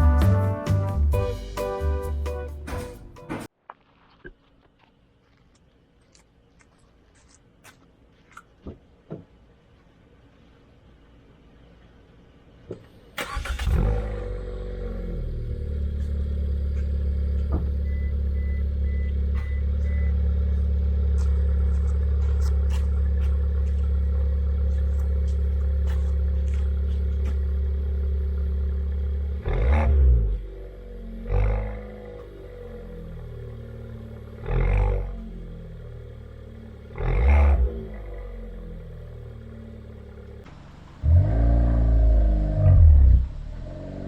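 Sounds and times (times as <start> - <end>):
car engine starting and idling: 12.3 - 44.0.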